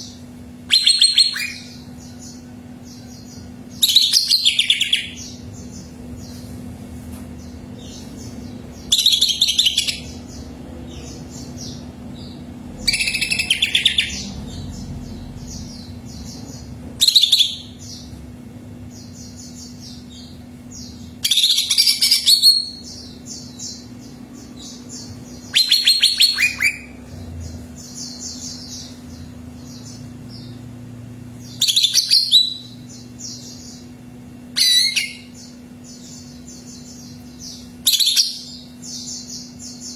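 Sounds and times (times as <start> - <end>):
faint bird chirping: 0.0 - 6.6, 7.3 - 39.9
low steady hum: 0.0 - 39.9
bird singing high-pitched bursts: 0.6 - 1.9, 3.8 - 5.4, 8.9 - 10.3, 12.8 - 14.8, 17.0 - 18.0, 24.7 - 27.0, 31.5 - 33.8, 34.5 - 35.6, 37.5 - 39.5.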